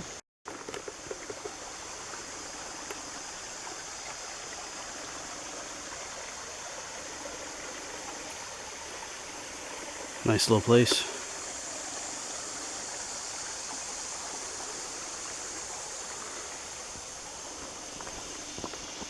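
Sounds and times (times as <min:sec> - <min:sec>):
creek water running: 0:00.0 - 0:19.0.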